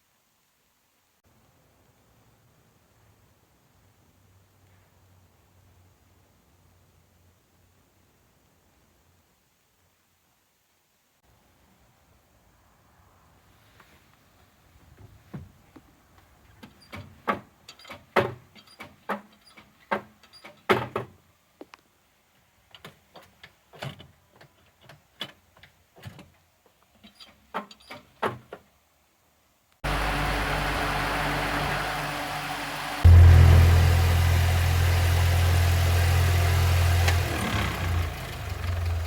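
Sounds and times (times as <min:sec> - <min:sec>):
steady noisy sound: 0:29.8 - 0:36.2.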